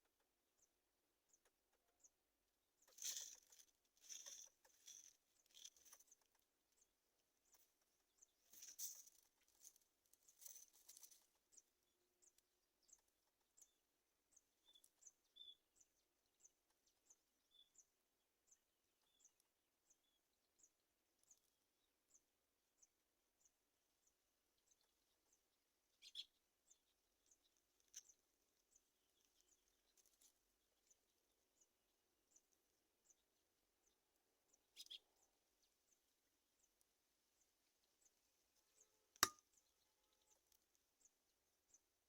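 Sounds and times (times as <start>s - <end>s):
faint high-pitched chirps: 26.0s - 28.2s, 34.6s - 35.3s.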